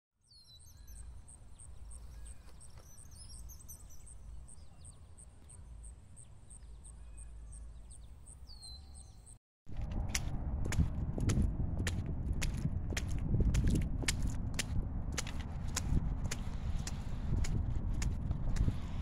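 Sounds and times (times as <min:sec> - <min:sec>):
birds chirping: 0:00.2 - 0:09.4
steady low rumble: 0:09.7 - 0:19.0.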